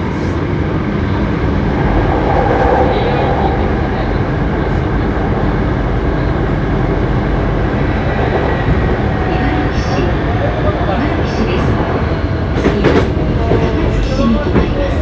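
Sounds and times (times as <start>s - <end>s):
train motor hum: 0.0s - 15.0s
train wheels rumbling: 0.0s - 15.0s.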